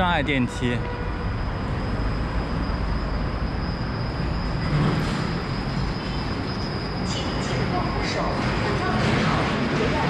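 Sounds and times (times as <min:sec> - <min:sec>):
heavy road traffic rumble: 0:00.0 - 0:10.0.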